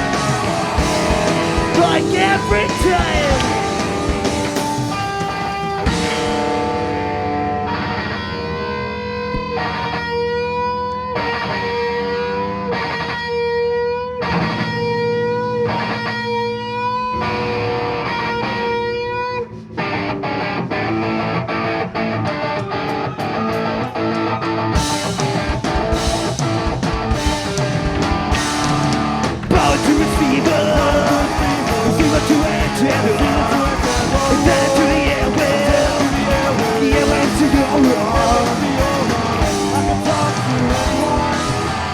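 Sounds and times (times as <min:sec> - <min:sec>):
drum hits: 0:00.0 - 0:07.0, 0:24.8 - 0:41.9
electric guitar notes: 0:00.0 - 0:41.9
rock band playing: 0:00.0 - 0:41.9.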